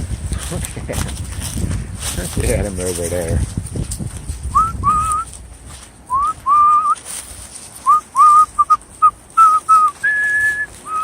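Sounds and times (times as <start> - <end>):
person whistling: 4.5 - 5.3, 6.1 - 7.0, 7.8 - 11.0.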